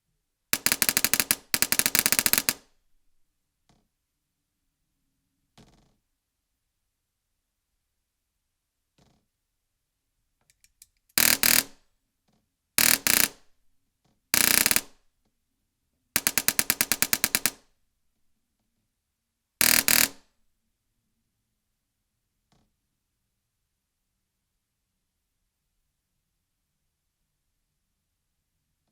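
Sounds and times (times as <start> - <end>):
airsoft gun firing bursts: 0.6 - 2.7, 11.2 - 11.8, 12.8 - 13.4, 14.4 - 15.0, 16.2 - 17.6, 19.6 - 20.2.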